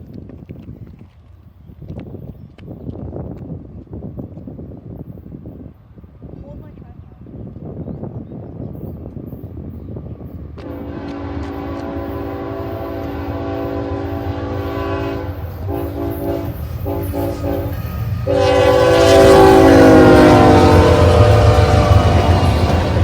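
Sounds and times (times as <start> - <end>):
locomotive engine rumble: 10.0 - 23.0
locomotive air horn blasts: 10.6 - 23.0.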